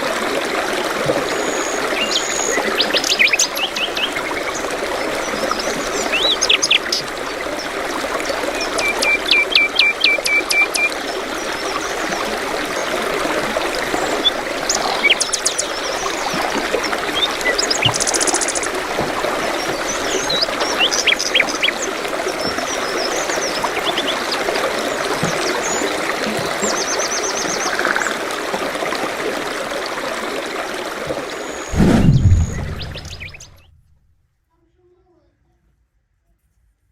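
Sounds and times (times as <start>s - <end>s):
running water: 0.0s - 33.6s
birds chirping and trilling: 13.9s - 16.4s, 31.5s - 33.7s.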